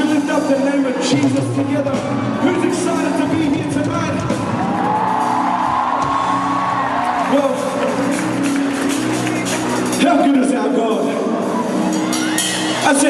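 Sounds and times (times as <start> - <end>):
live worship band music: 0.0 - 13.0
crowd whooping: 1.8 - 10.0, 11.4 - 13.0.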